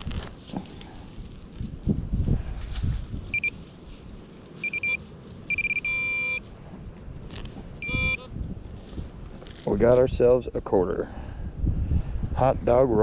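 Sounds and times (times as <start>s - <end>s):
metal detector beeping: 3.3s - 3.6s, 4.6s - 6.5s, 7.8s - 8.3s.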